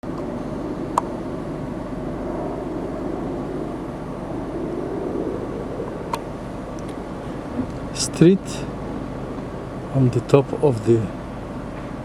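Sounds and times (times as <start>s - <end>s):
car driving rumble: 5.1s - 12.0s.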